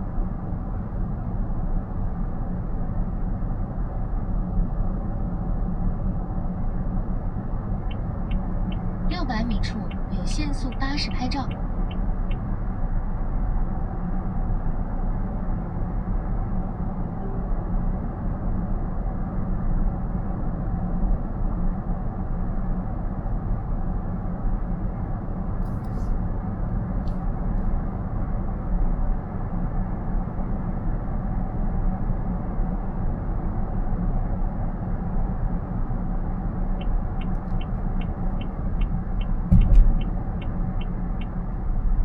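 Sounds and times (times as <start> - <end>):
turn signal ticking: 7.8 - 12.5, 36.7 - 41.8
tyre and road rumble in car: 33.4 - 42.0
thump from road bump: 39.5 - 40.0.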